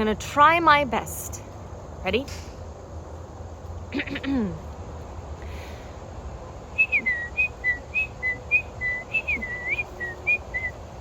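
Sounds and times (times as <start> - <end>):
person whistling birdsong: 6.8 - 10.8.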